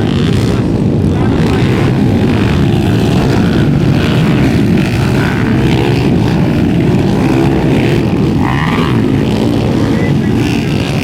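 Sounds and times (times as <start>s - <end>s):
motorcycle engines droning: 0.0s - 11.0s.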